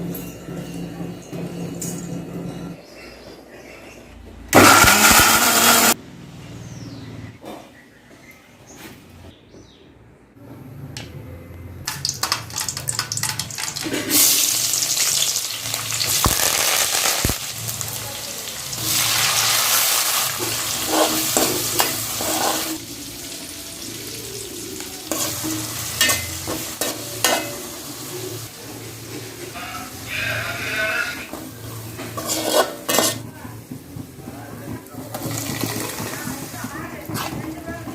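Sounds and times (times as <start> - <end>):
food sizzling in hot oil: 11.9 - 33.7, 35.1 - 37.6
spoon scraping against pan: 20.4 - 22.8, 25.1 - 28.3, 29.1 - 33.3.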